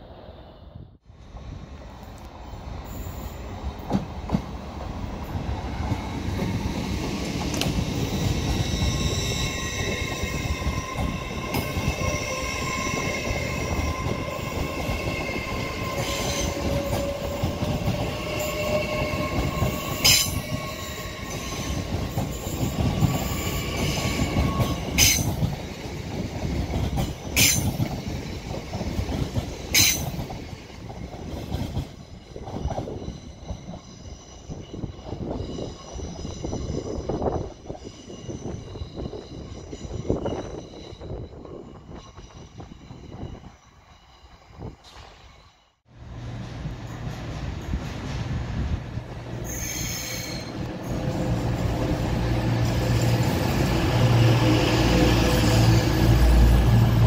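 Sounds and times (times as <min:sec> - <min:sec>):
train wheel and rail rumble: 0:00.0 - 0:57.0
train whine: 0:00.0 - 0:57.0.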